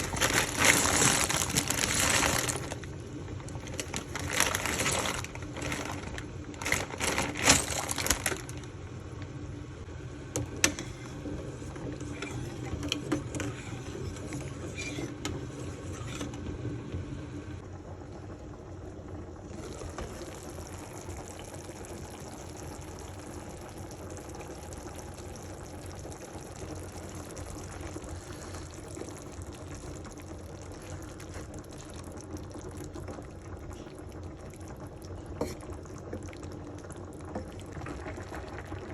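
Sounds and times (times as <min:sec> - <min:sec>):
liquid bubbling in a pot: 0:00.0 - 0:38.9
utensil clicks and clatters: 0:03.5 - 0:08.7.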